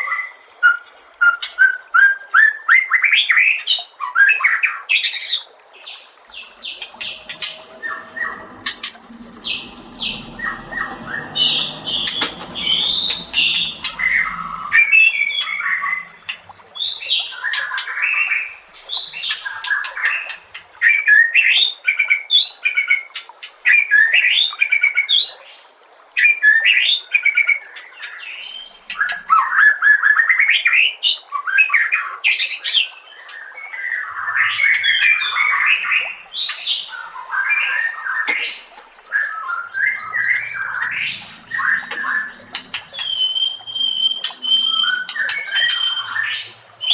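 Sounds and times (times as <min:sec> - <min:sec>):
bird singing whistled song: 0:39.2 - 0:46.9.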